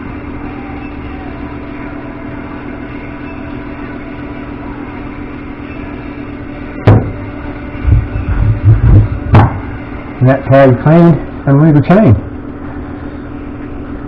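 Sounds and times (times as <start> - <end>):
sharp knock: 6.9 - 7.2, 7.9 - 9.7.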